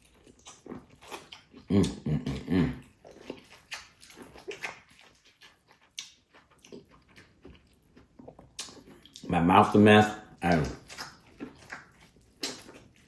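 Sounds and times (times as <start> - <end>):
biting and chewing corn: 0.0 - 13.0.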